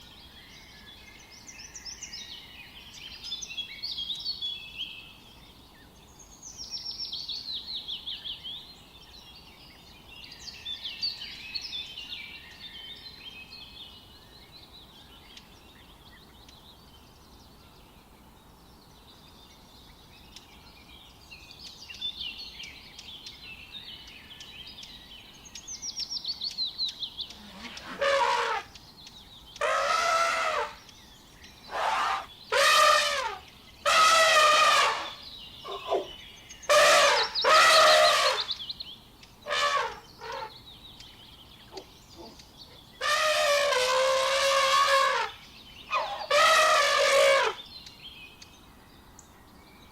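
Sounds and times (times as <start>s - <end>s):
songbird singing trilled notes: 0.0s - 28.0s, 28.6s - 32.6s, 35.0s - 43.0s, 47.6s - 49.9s
elephant trumpeting: 27.5s - 28.7s, 29.6s - 30.8s, 31.7s - 36.1s, 36.7s - 38.5s, 39.5s - 40.5s, 43.0s - 47.6s.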